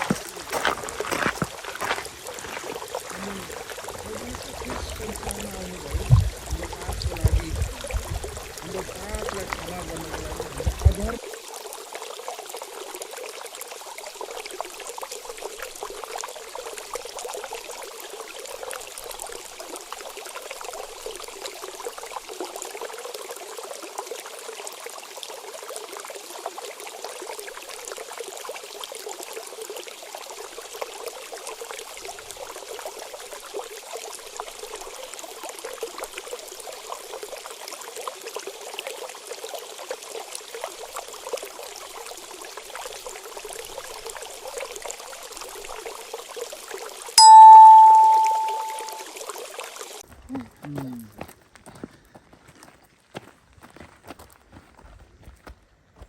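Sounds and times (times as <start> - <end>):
hot water bubbling and splashing: 0.0 - 47.2.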